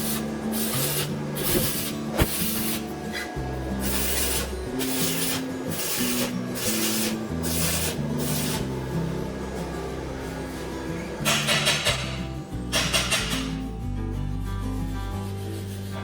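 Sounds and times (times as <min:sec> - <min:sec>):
rasping strokes on metal: 0:00.0 - 0:08.9
background music: 0:00.0 - 0:16.0.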